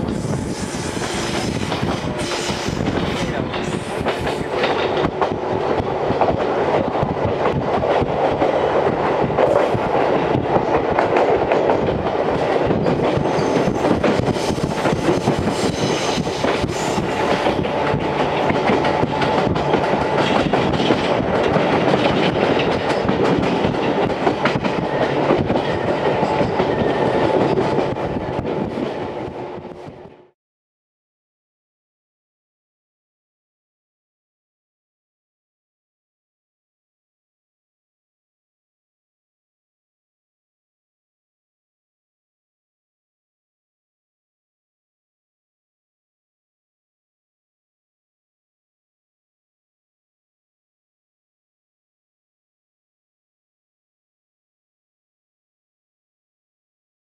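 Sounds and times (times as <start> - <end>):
clickety-clack of rail joints: 0.0 - 30.4
train wheels on rails: 0.0 - 30.4.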